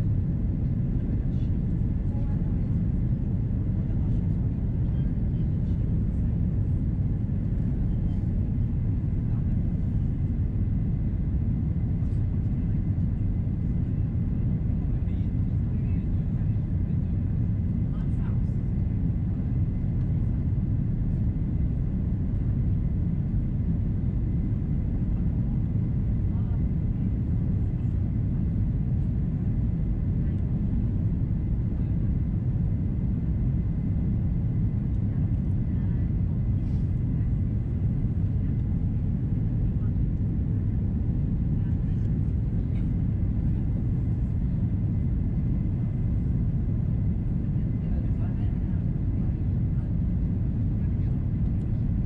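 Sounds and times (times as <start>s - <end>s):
aircraft cabin rumble: 0.0s - 52.0s.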